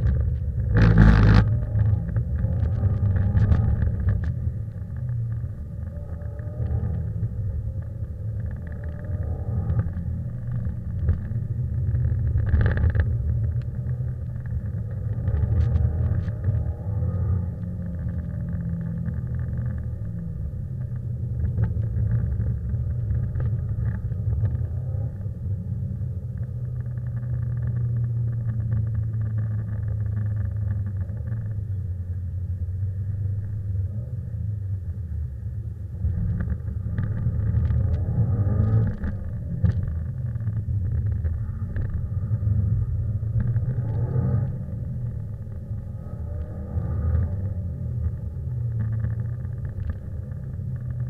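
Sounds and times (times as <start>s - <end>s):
car engine revving: 36.0s - 51.0s.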